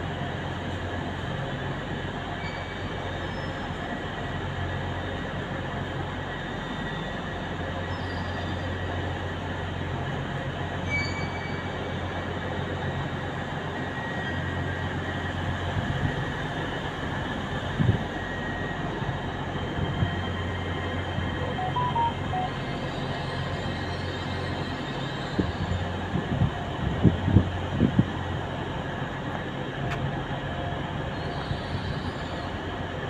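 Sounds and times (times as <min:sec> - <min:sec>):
train station hum: 0:00.0 - 0:33.0
faint high squeals: 0:02.4 - 0:03.6, 0:10.8 - 0:11.8.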